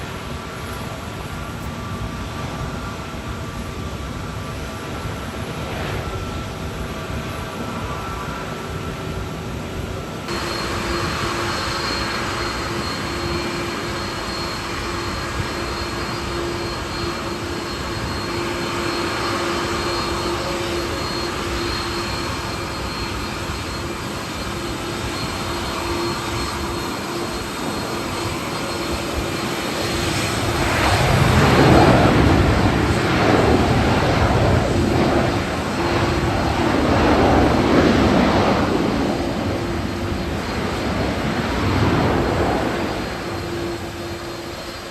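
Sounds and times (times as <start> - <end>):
jet airliner landing: 0.0 - 44.9.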